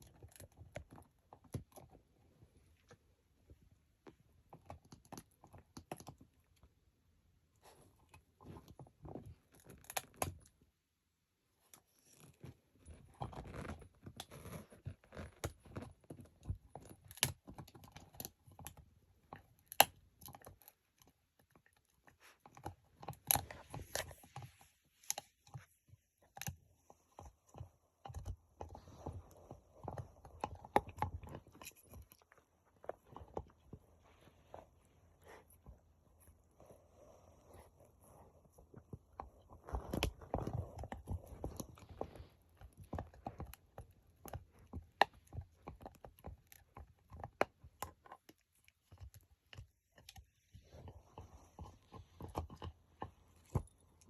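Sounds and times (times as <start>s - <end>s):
puppy chewing and gnawing: 0.0s - 10.6s, 11.8s - 54.0s.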